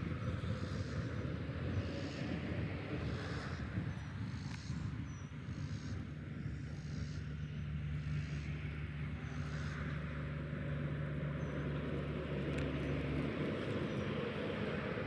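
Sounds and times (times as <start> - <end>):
passing vehicle engine hum: 7.0 - 15.0.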